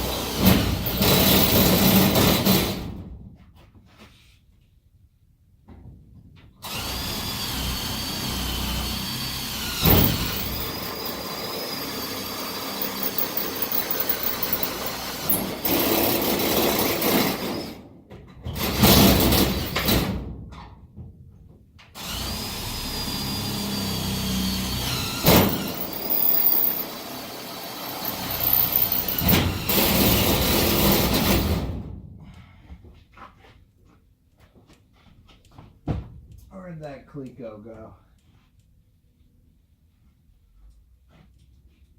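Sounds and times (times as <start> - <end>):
power drill whining: 0.0 - 2.5, 6.6 - 17.7, 22.0 - 31.4
sharp loud drill jolt: 0.0 - 2.9, 6.6 - 17.8, 18.6 - 20.2, 22.0 - 31.8.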